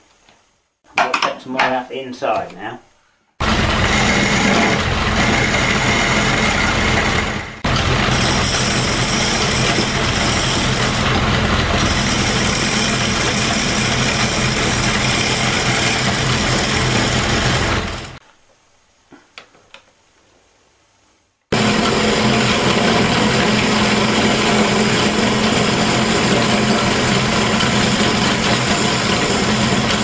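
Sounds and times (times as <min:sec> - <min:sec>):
chisel cutting wood: 0:03.4 - 0:18.2, 0:21.5 - 0:30.0
lathe motor humming: 0:03.4 - 0:18.2, 0:21.5 - 0:30.0.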